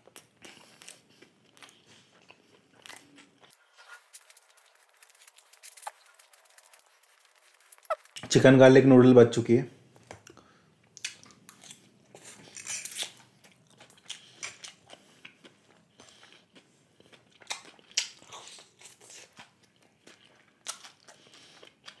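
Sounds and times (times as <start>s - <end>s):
person chewing noodles: 0.0s - 8.2s, 10.0s - 22.0s
small crunches: 0.0s - 8.3s
wet mouth clicks: 14.0s - 14.8s.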